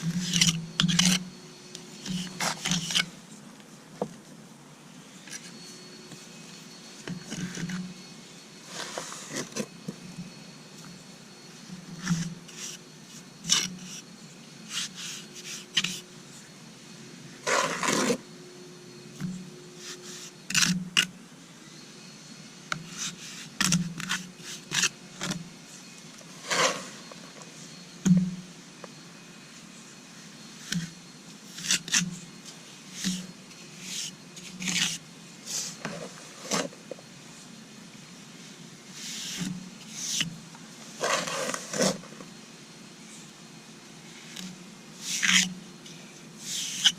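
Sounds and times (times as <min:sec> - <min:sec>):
trowel scraping mortar on concrete: 0:00.0 - 0:01.3, 0:02.0 - 0:03.2, 0:12.0 - 0:14.1, 0:14.7 - 0:16.0, 0:17.5 - 0:18.2, 0:22.8 - 0:25.4, 0:26.3 - 0:27.1, 0:31.5 - 0:32.2, 0:33.0 - 0:36.8, 0:41.0 - 0:42.2, 0:44.3 - 0:45.6.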